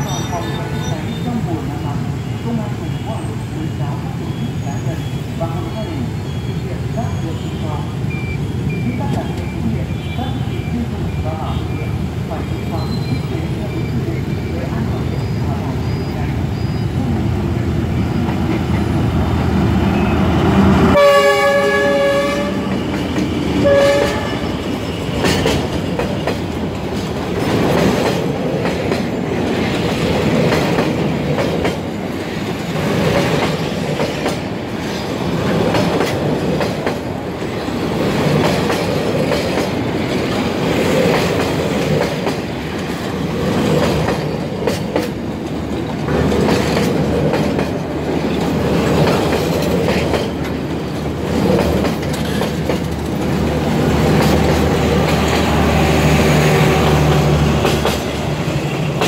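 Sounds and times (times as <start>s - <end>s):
steel wheels rumbling on rail: 0.0s - 59.0s
wheels clacking over rail joints: 22.7s - 59.0s.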